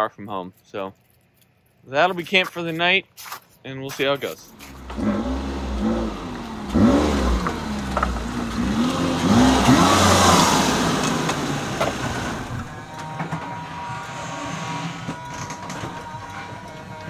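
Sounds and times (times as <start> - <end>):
road and tyre hiss: 2.4 - 12.7
truck engine revving: 4.5 - 17.0.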